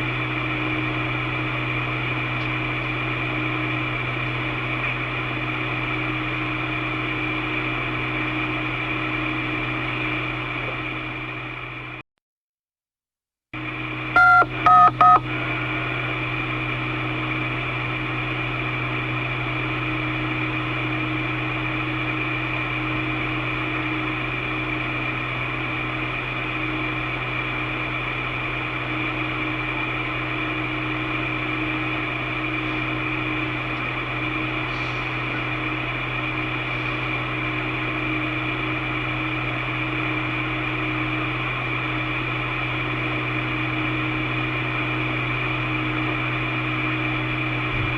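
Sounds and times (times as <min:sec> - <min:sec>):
constant hum: 0:00.0 - 0:11.2, 0:13.6 - 0:47.9
radio signalling beeps: 0:14.2 - 0:15.3.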